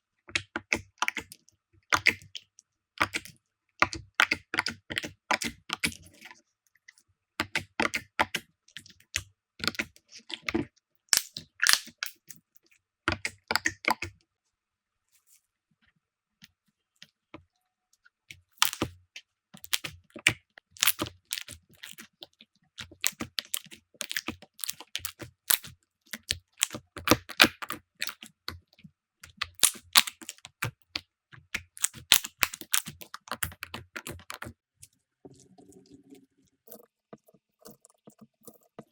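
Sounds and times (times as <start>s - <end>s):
slime crackling and popping: 11.1s - 12.0s, 18.6s - 18.9s, 19.6s - 20.0s, 20.8s - 22.0s, 22.8s - 28.3s, 29.3s - 30.8s, 31.5s - 34.5s.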